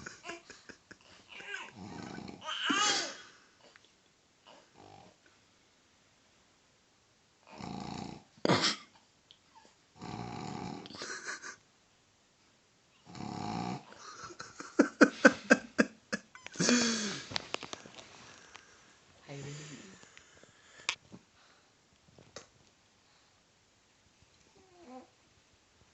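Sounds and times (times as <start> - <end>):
dog snoring loudly: 1.7 - 2.4, 7.5 - 8.3, 10.0 - 10.9, 13.0 - 13.9.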